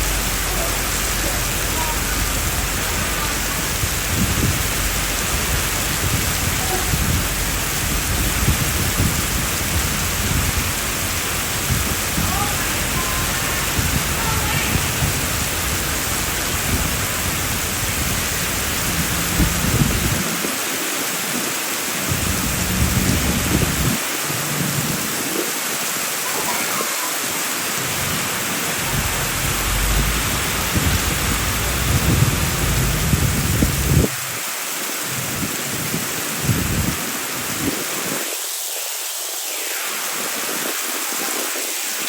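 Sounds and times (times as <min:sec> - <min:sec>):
low rumbles: 0:00.0 - 0:20.3, 0:22.1 - 0:25.4, 0:27.7 - 0:37.7
heavy rain falling: 0:00.0 - 0:42.0.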